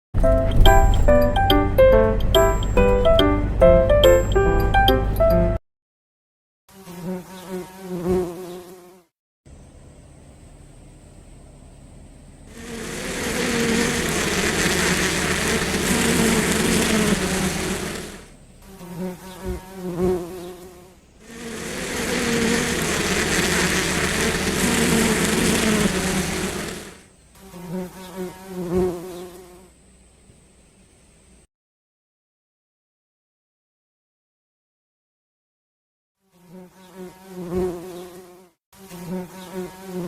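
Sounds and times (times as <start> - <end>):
bees buzzing: 12.5 - 29.6.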